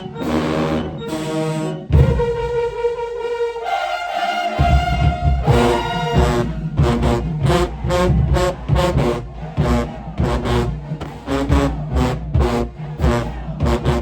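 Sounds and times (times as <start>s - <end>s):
brass chords: 0.0s - 14.0s
low tubas: 0.0s - 14.0s
heavy drums: 1.9s - 2.8s, 4.6s - 14.0s.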